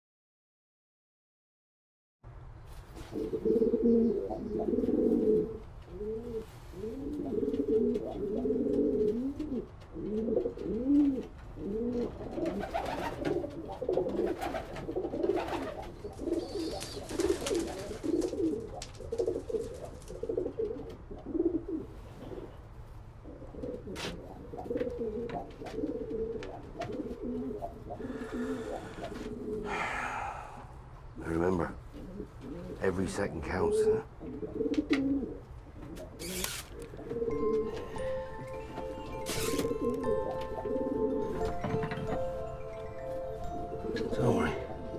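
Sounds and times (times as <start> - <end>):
pigeons cooing: 3.0 - 22.6, 23.2 - 30.8, 31.7 - 44.9
rustling: 35.8 - 37.3.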